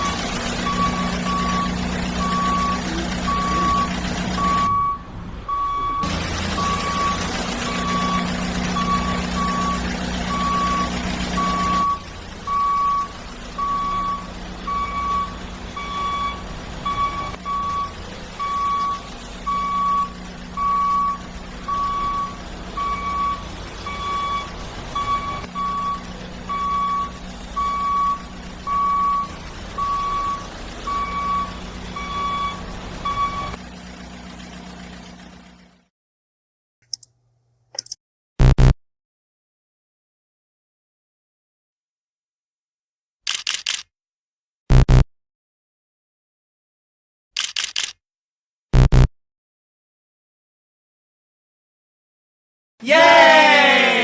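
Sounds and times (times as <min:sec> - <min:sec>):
toy high reversing beep: 0:00.0 - 0:07.2, 0:07.8 - 0:33.6
toy low engine hum: 0:00.0 - 0:35.8.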